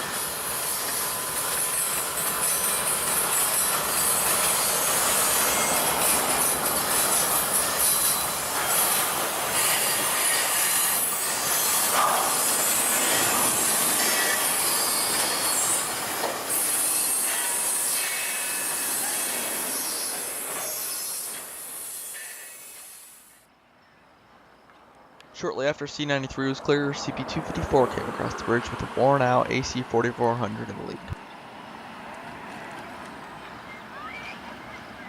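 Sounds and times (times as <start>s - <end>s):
train wheels squealing: 0.0s - 24.7s, 33.4s - 35.0s
freight train cars rolling: 0.0s - 24.8s.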